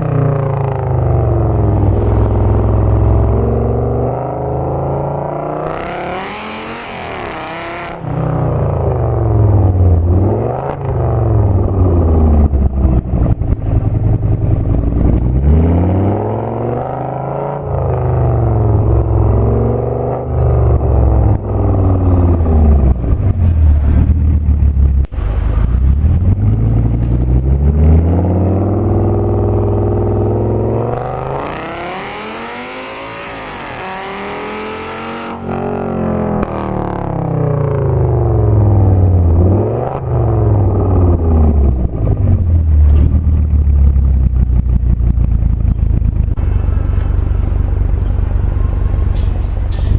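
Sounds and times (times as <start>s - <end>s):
car engine revving hard: 0.6s - 12.6s, 15.0s - 24.2s, 25.2s - 41.9s.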